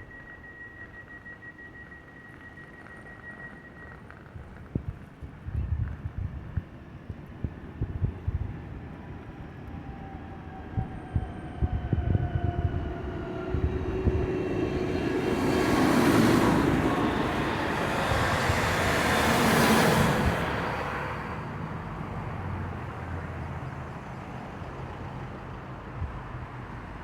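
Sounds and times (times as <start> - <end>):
tractor engines driving past: 12.7 - 27.0.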